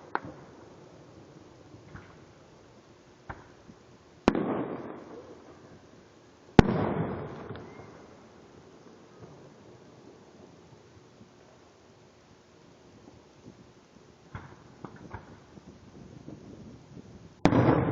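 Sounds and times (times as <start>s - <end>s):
fireworks booming: 3.2s - 5.9s, 6.6s - 10.6s, 14.2s - 17.9s.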